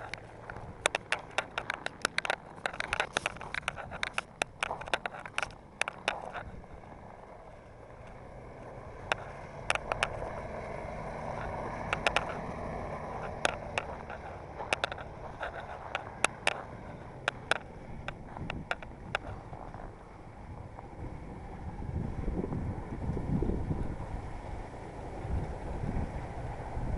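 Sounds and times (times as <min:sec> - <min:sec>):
sharp clicks and cracks: 0:00.0 - 0:07.0, 0:09.0 - 0:10.4, 0:11.2 - 0:20.0
truck engine and road noise: 0:00.0 - 0:26.9.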